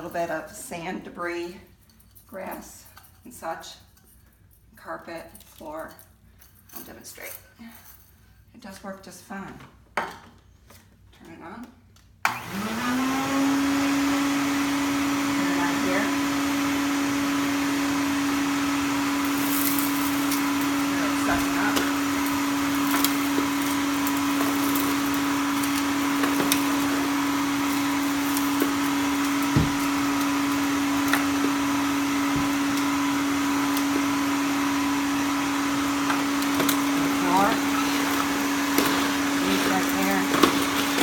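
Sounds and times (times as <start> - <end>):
vacuum cleaner running: 12.2 - 41.0
debris clicking in vacuum: 19.2 - 31.7.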